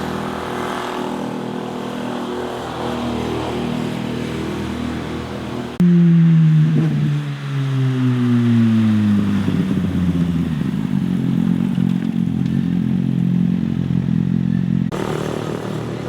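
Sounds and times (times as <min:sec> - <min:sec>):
motorcycle engine passing: 0:05.8 - 0:16.0.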